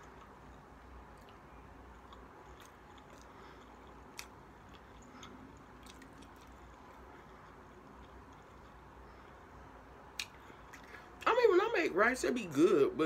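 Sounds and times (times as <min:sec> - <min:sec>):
person chewing food: 0:00.0 - 0:11.2
wet mouth clicks and smacks: 0:10.1 - 0:11.0.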